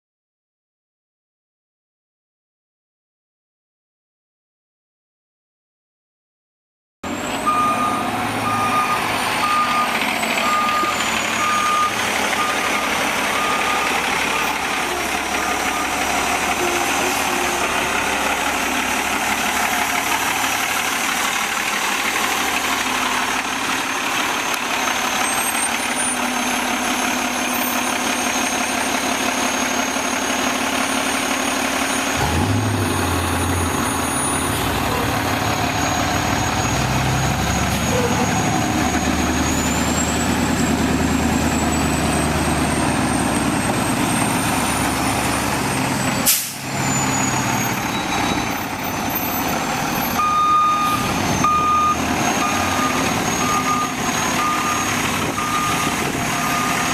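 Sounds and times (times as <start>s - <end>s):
garbage truck diesel engine running: 7.0s - 56.9s
deep engine rumble: 7.1s - 56.9s
backup alarm beeping: 50.2s - 56.9s.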